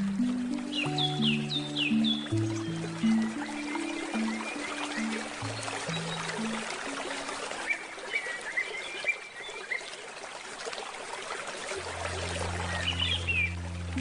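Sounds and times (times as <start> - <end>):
low sustained music notes: 0.0 - 8.1, 11.7 - 14.0
birds chirping: 0.0 - 9.9, 12.0 - 14.0
river water flowing: 0.0 - 14.0.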